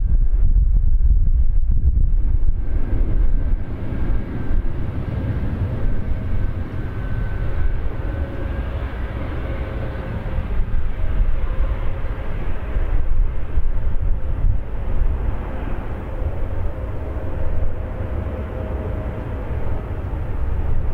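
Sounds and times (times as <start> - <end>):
faint engine whine: 0.0 - 20.9
jet engines rumbling: 0.0 - 20.9.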